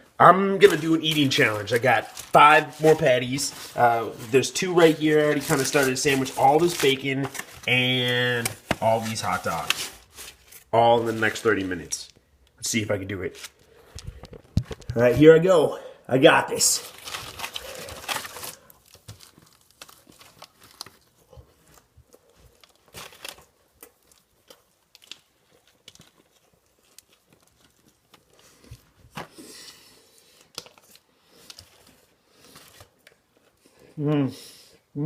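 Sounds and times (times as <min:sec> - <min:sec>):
paper wrapper crinkling: 0:00.4 - 0:12.3, 0:13.2 - 0:15.2, 0:16.4 - 0:33.7
man biting and chewing: 0:17.6 - 0:33.8.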